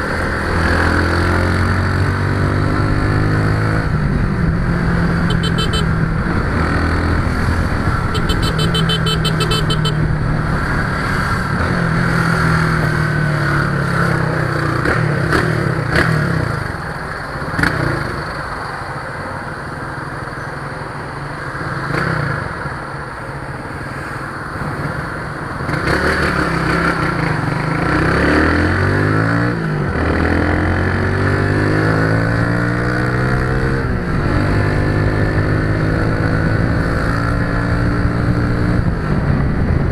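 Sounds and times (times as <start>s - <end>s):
vehicle engine running: 7.6s - 10.1s.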